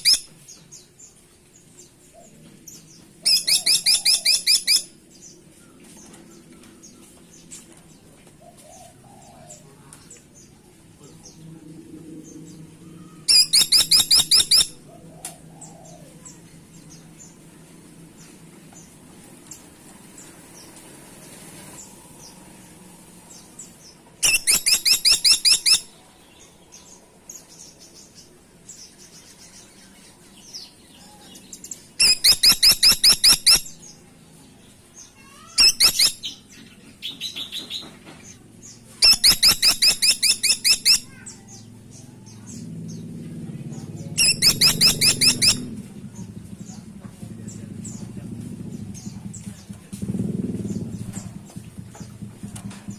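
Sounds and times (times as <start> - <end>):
woodpecker rattling calls: 3.3 - 4.9, 13.3 - 14.8, 24.2 - 25.9, 32.0 - 33.8, 35.2 - 36.5, 39.0 - 41.4, 44.2 - 46.8
low hum: 9.6 - 13.3.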